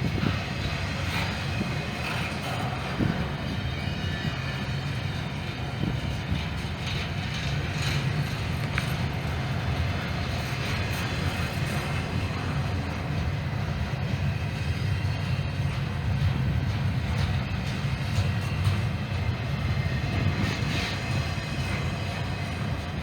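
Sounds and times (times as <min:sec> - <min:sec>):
freight train wheels rumbling on rails: 0:00.0 - 0:23.0.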